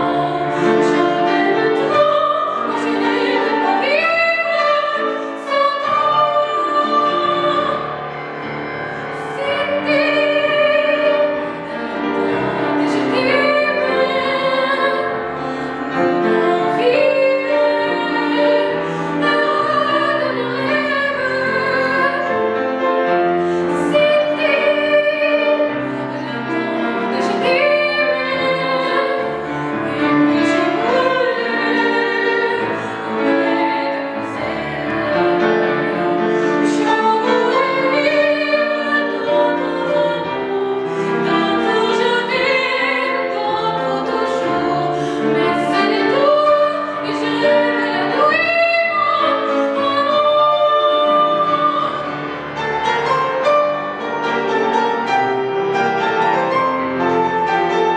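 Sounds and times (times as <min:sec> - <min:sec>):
person singing classical style: 0:00.0 - 0:57.9
piano accompaniment: 0:00.0 - 0:57.9.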